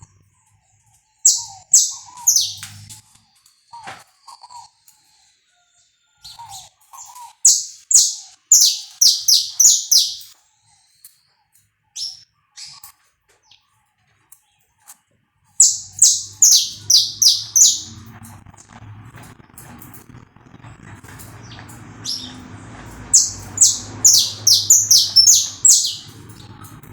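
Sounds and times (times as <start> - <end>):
finch singing high chirps: 1.2 - 2.9, 6.3 - 10.4, 12.0 - 12.8, 15.6 - 18.2, 21.2 - 26.7
low hum: 15.6 - 26.9.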